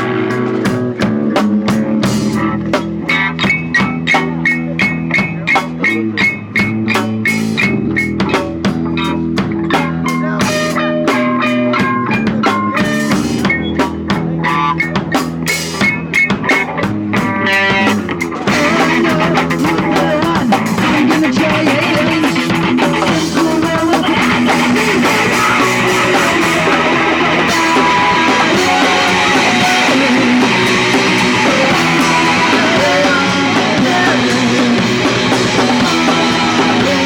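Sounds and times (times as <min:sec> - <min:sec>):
punk rock band playing: 0:00.0 - 0:37.0
fast drum hits: 0:15.8 - 0:37.0.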